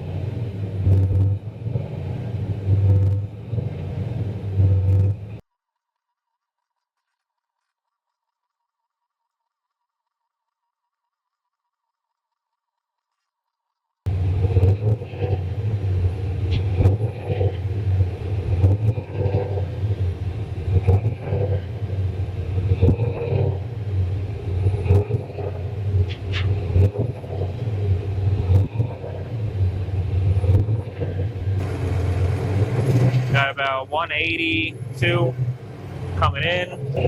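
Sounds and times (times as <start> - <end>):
car engine low uneven rumble: 0.0 - 5.4, 14.1 - 37.0.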